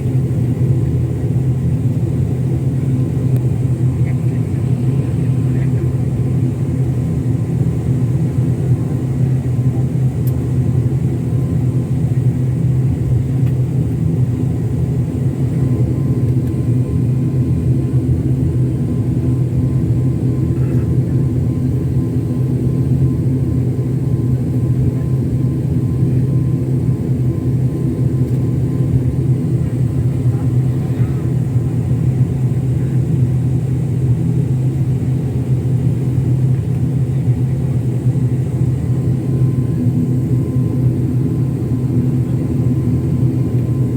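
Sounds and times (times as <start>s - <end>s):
airliner engines humming: 0.0s - 43.9s.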